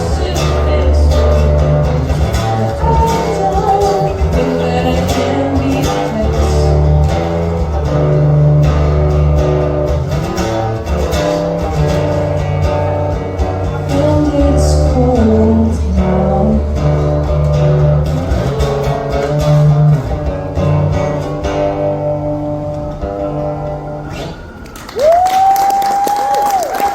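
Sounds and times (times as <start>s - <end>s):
person singing: 0.0s - 7.2s, 13.7s - 17.3s
low bass notes: 0.0s - 24.7s
guitar playing: 0.0s - 25.2s.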